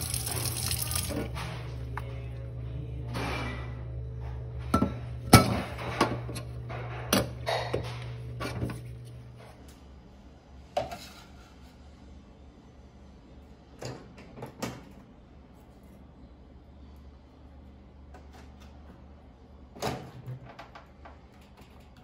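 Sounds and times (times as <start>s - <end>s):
low steady hum: 0.0s - 10.6s.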